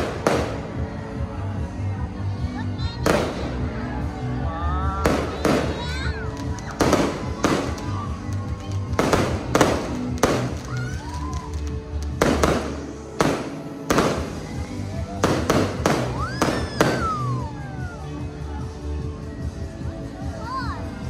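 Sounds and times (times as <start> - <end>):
fireworks bursting: 0.0 - 0.7, 3.0 - 3.6, 5.0 - 17.5.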